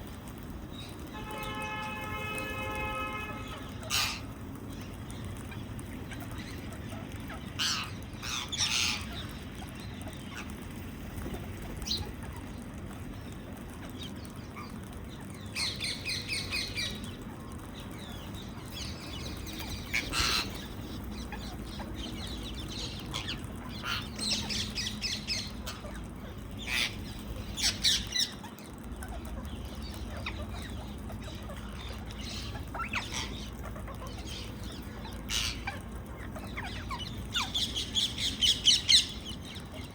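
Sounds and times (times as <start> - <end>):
parakeets squawking: 1.3 - 4.4, 6.1 - 10.5, 18.3 - 39.9.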